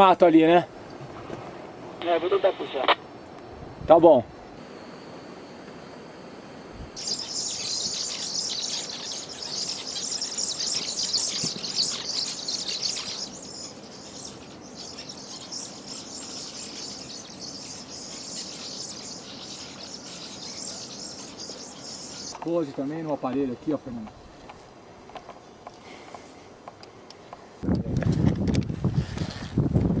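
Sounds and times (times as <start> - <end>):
insect chorus chirring: 4.2 - 23.8.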